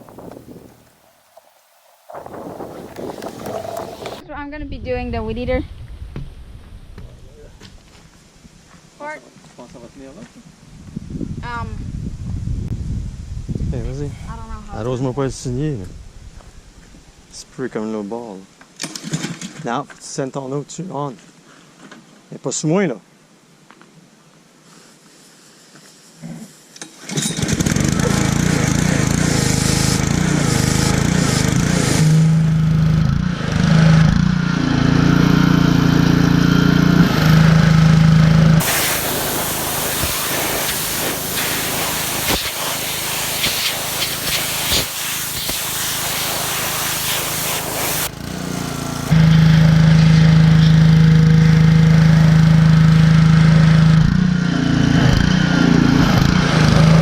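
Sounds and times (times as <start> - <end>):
pressure washer humming: 0.0 - 4.2, 27.5 - 33.0, 34.6 - 52.8
water jet spraying hiss: 0.0 - 4.2, 38.6 - 49.2.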